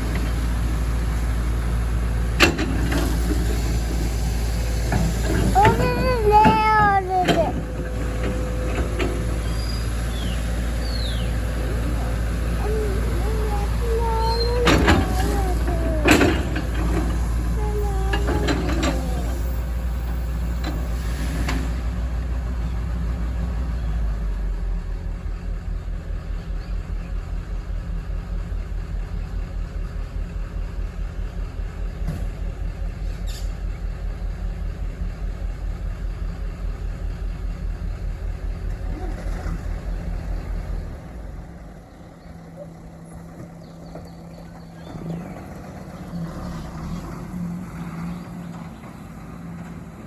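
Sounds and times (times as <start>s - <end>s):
excavator diesel engine: 0.0s - 50.0s
metallic knocks and squeals: 12.9s - 19.7s.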